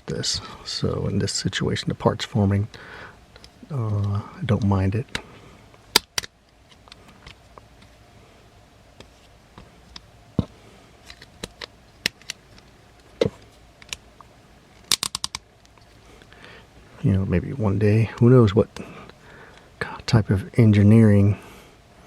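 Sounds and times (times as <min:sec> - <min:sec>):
plastic toy parts clicking: 0:06.0 - 0:06.3, 0:14.8 - 0:15.4.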